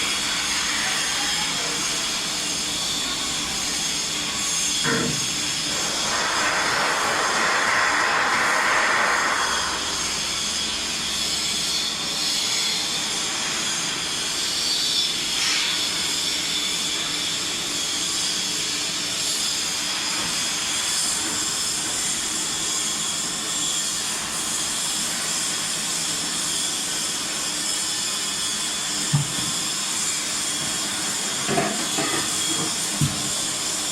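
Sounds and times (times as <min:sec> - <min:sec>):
metal spinning machine whirring: 0:20.4 - 0:33.9.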